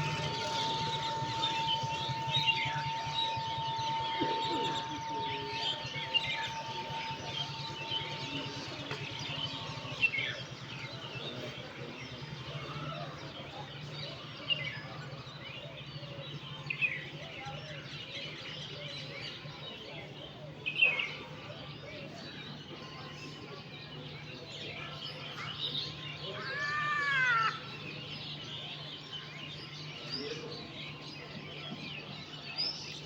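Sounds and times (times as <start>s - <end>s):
thin steady tone: 0.0s - 10.8s
steady low hum: 0.0s - 16.6s
birds chirping in chorus: 0.0s - 33.0s.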